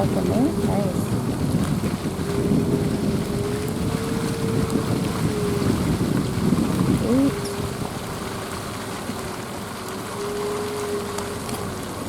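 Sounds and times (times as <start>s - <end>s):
vehicle road and engine rumble: 0.0s - 4.6s.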